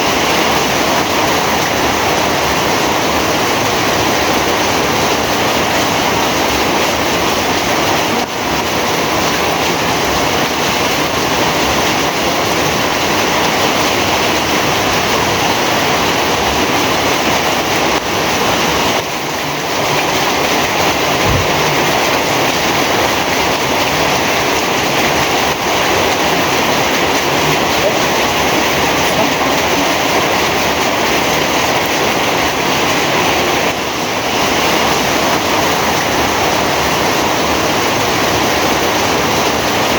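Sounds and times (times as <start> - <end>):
heavy rain falling: 0.0 - 39.9
short low thump: 21.2 - 22.1.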